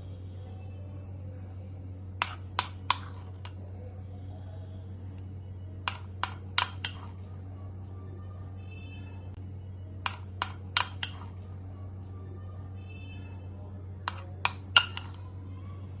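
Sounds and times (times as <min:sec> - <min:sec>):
steady low hum: 0:00.0 - 0:16.0
spoon tapping against a dish: 0:02.2 - 0:03.6, 0:05.8 - 0:07.1, 0:10.0 - 0:11.3, 0:14.0 - 0:15.2.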